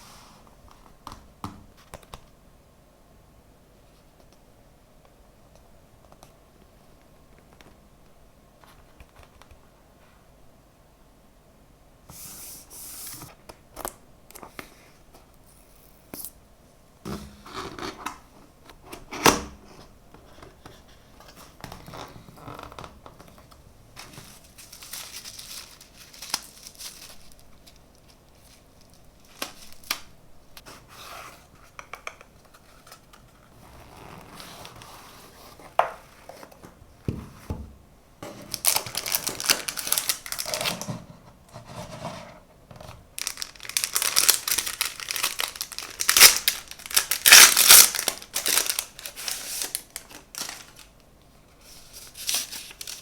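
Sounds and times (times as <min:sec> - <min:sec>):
packaging tearing and crinkling: 0:24.1 - 0:30.1, 0:38.5 - 0:40.9, 0:43.2 - 0:50.9, 0:52.0 - 0:53.0.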